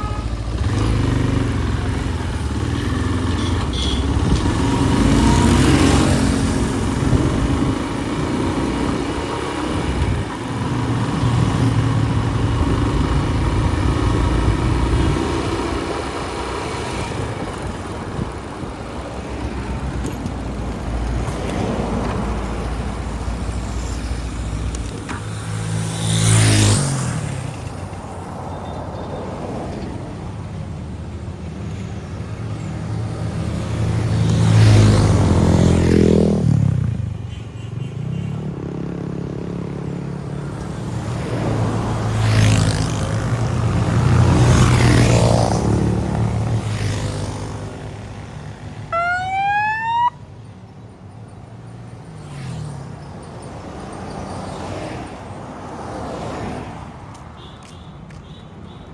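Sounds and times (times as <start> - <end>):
motorbike engine: 0.0 - 27.9
street traffic: 0.0 - 58.9.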